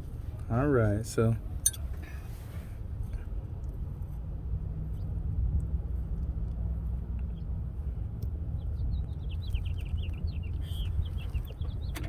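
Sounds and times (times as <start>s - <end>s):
steady low rumble: 0.0s - 11.9s
bird chirping: 8.6s - 12.0s.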